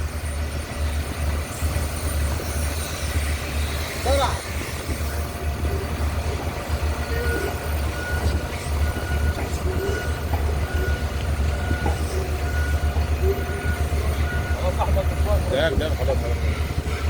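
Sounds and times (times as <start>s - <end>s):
heavy machinery humming: 0.0s - 17.0s
high warning beep: 7.0s - 16.2s.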